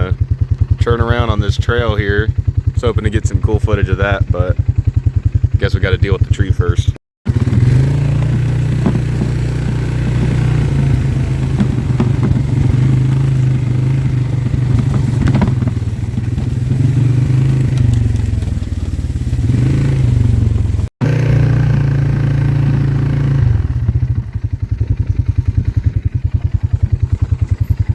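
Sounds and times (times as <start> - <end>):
atv engine revving: 0.0 - 27.9
clatter: 7.3 - 21.2, 23.9 - 27.9.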